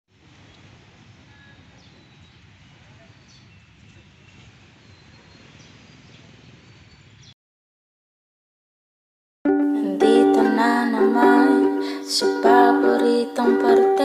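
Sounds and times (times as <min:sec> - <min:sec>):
faint background hiss: 0:09.5 - 0:14.0.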